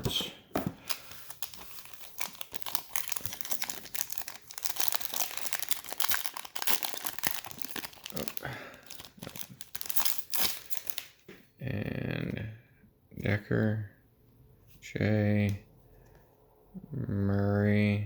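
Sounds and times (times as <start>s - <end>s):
plastic wrappers crinkling and tearing: 0.8s - 11.2s.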